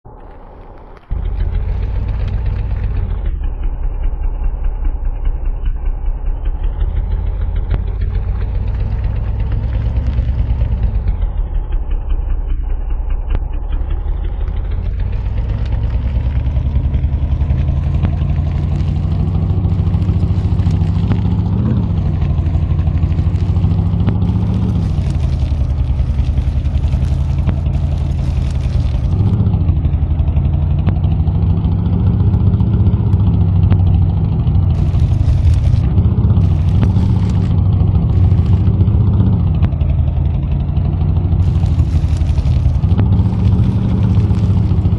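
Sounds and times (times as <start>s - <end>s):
truck engine revving: 0.0s - 44.9s
hiss: 14.8s - 29.4s, 34.8s - 38.9s, 41.4s - 44.9s.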